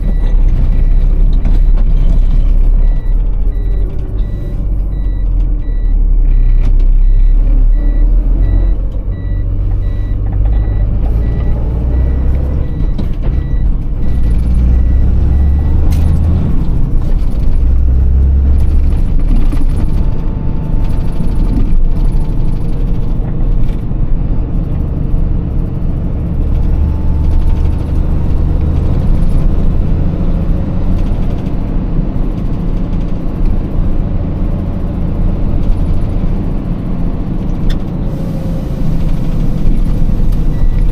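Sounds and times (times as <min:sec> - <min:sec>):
diesel truck engine rumbling: 0:00.0 - 0:40.9
high beeps: 0:02.8 - 0:15.8.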